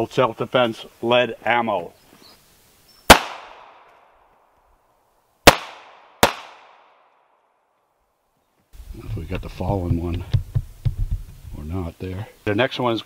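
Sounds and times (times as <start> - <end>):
pistol shots with echo: 3.1 - 3.9, 5.4 - 7.1.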